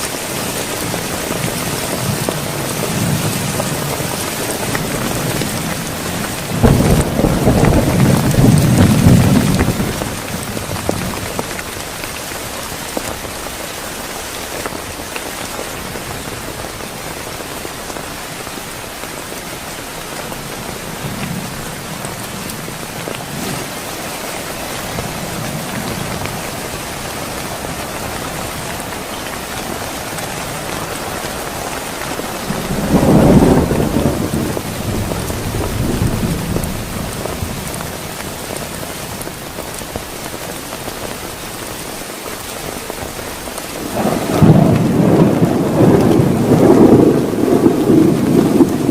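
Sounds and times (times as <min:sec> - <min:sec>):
thunder rumbling: 0:00.0 - 0:17.3, 0:19.8 - 0:40.4, 0:43.0 - 0:48.9
heavy rain hissing: 0:00.0 - 0:48.9.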